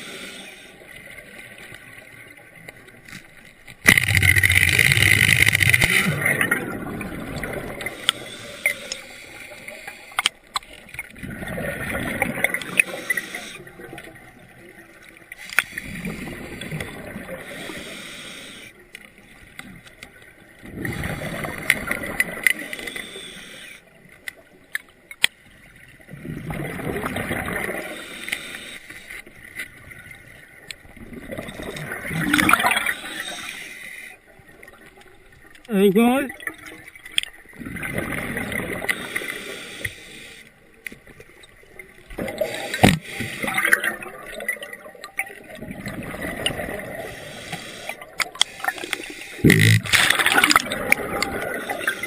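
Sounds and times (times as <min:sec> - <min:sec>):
bubbles gurgling underwater: 0:03.9 - 0:07.8, 0:11.1 - 0:12.8, 0:26.0 - 0:27.9, 0:30.8 - 0:32.9, 0:37.5 - 0:38.9, 0:43.4 - 0:47.1, 0:49.4 - 0:52.0.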